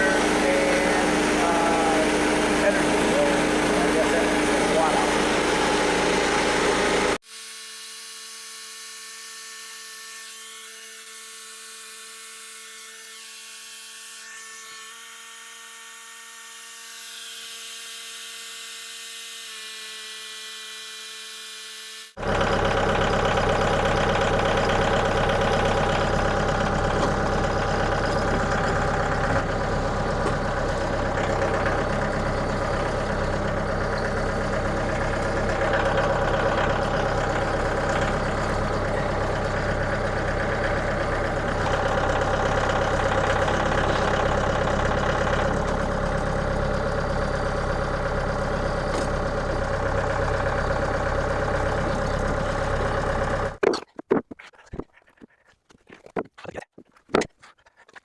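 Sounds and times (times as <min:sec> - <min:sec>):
engine running: 0:00.0 - 0:07.2, 0:22.2 - 0:58.0.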